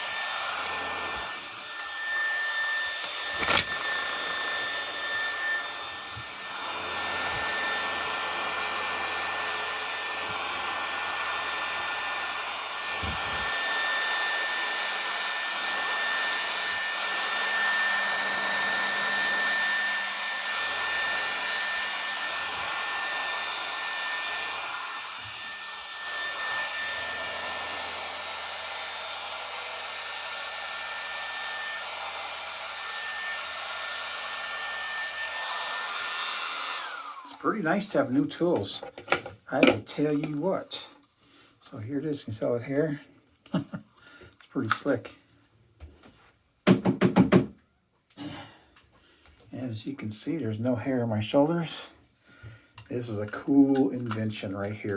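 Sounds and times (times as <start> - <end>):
hair clippers whirring: 0.0 - 40.8.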